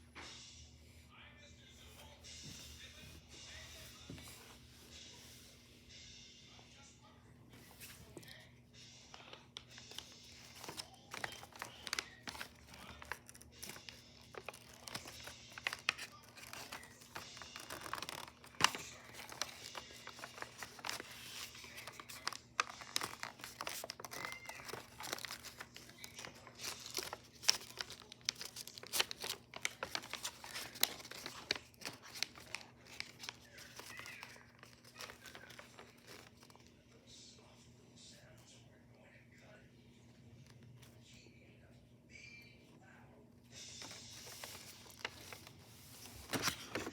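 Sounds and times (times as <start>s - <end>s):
paper crinkling: 7.6s - 37.0s, 43.6s - 46.9s.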